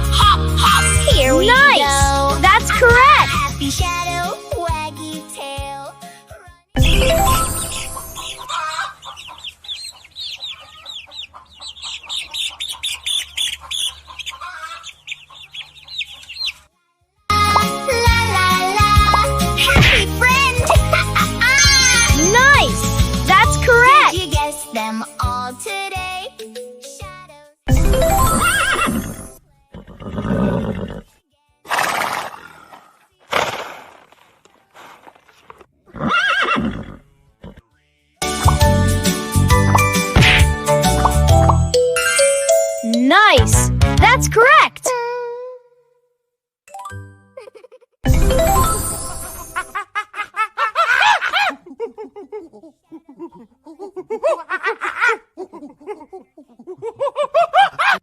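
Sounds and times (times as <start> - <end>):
birds chirping: 7.5 - 16.6
horse neighing: 35.9 - 37.6.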